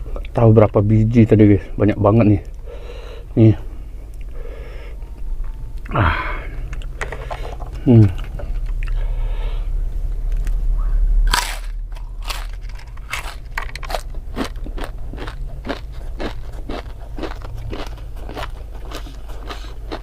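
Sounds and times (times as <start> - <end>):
crunchy bite and chewing: 11.3 - 20.0.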